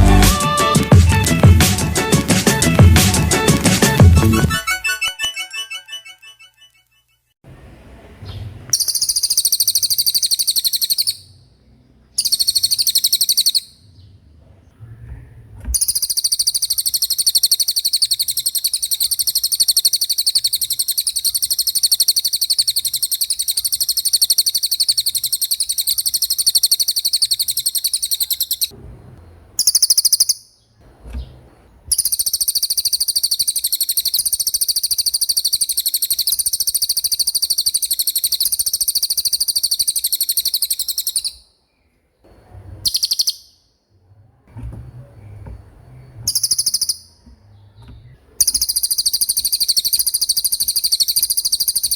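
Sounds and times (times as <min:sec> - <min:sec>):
songbird fast rolling trill: 0:08.8 - 0:11.4, 0:12.2 - 0:13.8, 0:15.8 - 0:28.7, 0:29.6 - 0:30.5, 0:31.9 - 0:41.4, 0:42.8 - 0:43.6, 0:46.2 - 0:47.2, 0:48.4 - 0:51.9.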